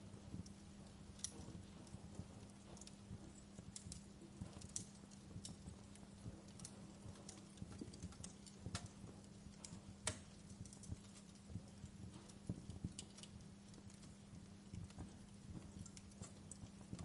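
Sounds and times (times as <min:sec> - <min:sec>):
low steady hum: 0:00.0 - 0:17.0
wood fire crackling and popping: 0:00.0 - 0:17.0.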